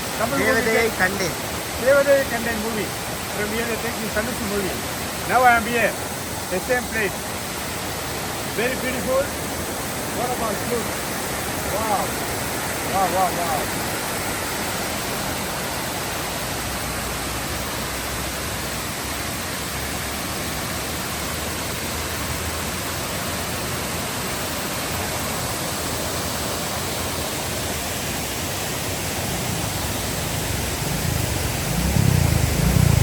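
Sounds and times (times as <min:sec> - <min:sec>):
waterfall rushing: 0:00.0 - 0:33.0
low rumble: 0:30.7 - 0:33.0.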